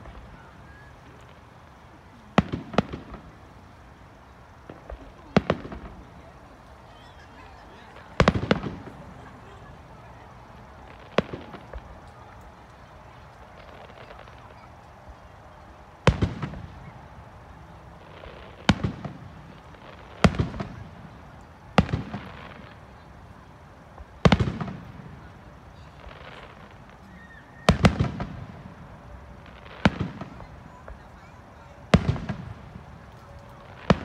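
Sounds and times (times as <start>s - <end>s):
firework bangs with echo: 2.3s - 3.4s, 4.6s - 6.4s, 7.0s - 12.4s, 16.0s - 17.0s, 18.0s - 22.9s, 23.9s - 34.0s.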